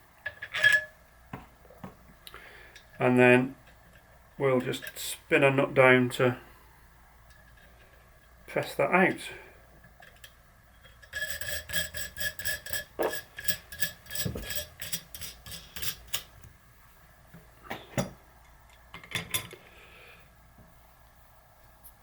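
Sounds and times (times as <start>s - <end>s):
metallic clicks and clinks of washers: 10.0s - 16.3s.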